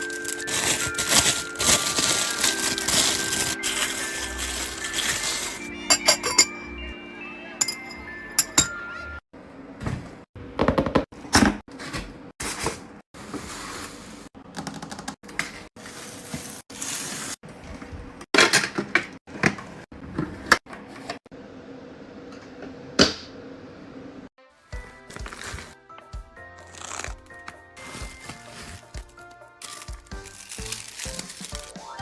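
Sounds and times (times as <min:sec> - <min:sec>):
packaging rustling: 0:00.0 - 0:05.7, 0:25.1 - 0:25.8, 0:26.6 - 0:31.8.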